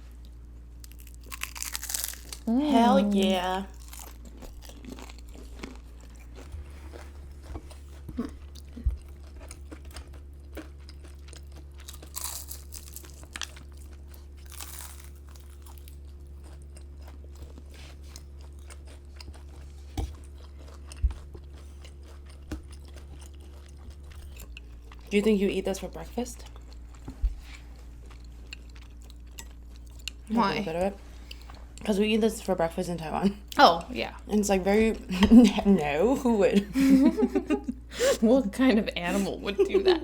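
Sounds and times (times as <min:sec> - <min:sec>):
steady low hum: 0:00.0 - 0:40.0
food being crunched and chewed: 0:00.2 - 0:02.6, 0:03.6 - 0:30.3
crackly bursts: 0:00.8 - 0:02.5.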